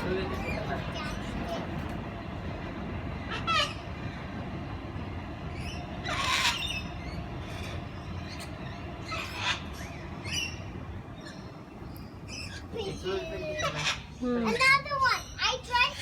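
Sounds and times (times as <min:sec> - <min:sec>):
parrot squawks: 0:03.3 - 0:03.8, 0:06.0 - 0:07.8, 0:08.4 - 0:10.6, 0:13.5 - 0:14.1.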